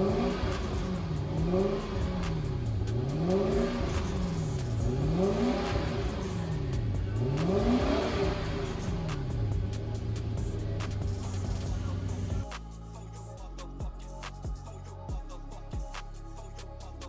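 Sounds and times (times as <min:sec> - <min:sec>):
car engine revving: 0:00.0 - 0:12.6.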